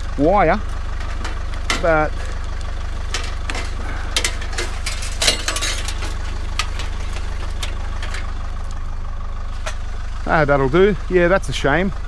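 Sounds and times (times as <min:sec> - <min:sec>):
vehicle engine idling: 0:00.0 - 0:12.0
computer parts clinking and rattling: 0:03.0 - 0:08.4.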